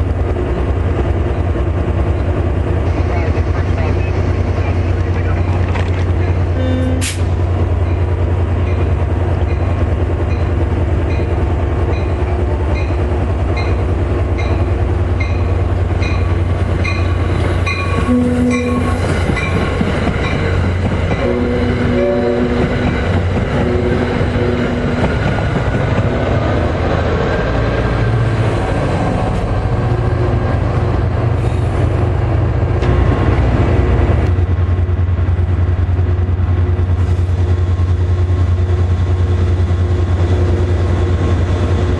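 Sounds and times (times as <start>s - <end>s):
train rumbling: 0.0s - 41.9s
train horn blasts: 6.5s - 7.3s, 17.7s - 19.1s, 21.1s - 25.2s.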